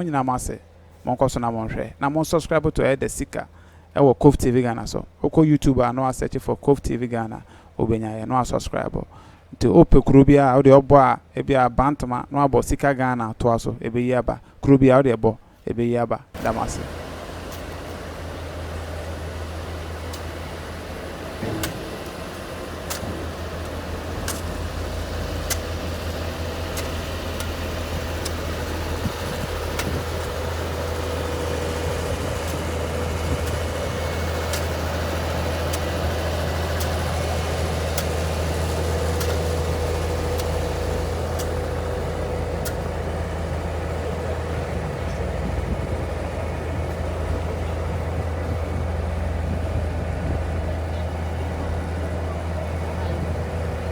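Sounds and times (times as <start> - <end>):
vehicle engine and road noise: 16.4 - 53.9.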